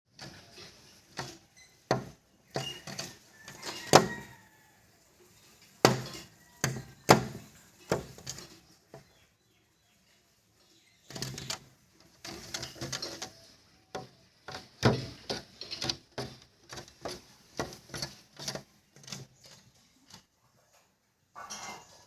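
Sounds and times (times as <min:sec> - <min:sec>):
sharp knocks and thumps: 0:00.1 - 0:04.3, 0:05.8 - 0:09.2, 0:11.1 - 0:20.3.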